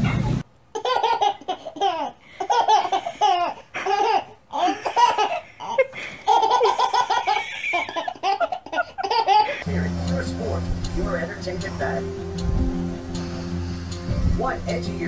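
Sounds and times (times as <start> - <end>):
baby laughing: 0.7 - 9.6.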